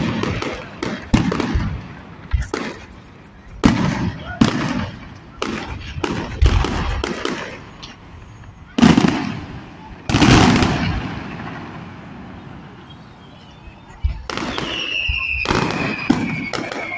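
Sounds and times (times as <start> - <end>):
fireworks bangs: 0.0 - 16.9.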